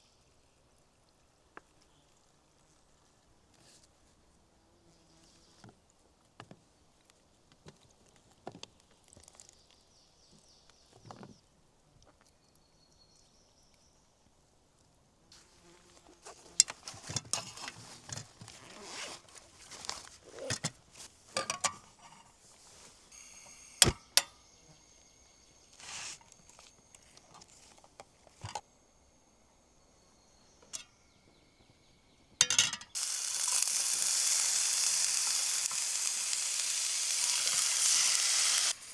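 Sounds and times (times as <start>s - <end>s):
cooking gear clicking and knocking: 32.4s - 38.2s
food sizzling in hot pan: 32.9s - 38.9s.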